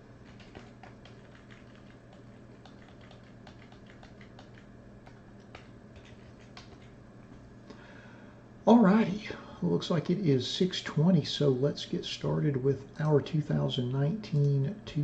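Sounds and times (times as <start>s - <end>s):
low steady hum: 0.0s - 15.0s
computer keyboard typing: 0.2s - 7.0s.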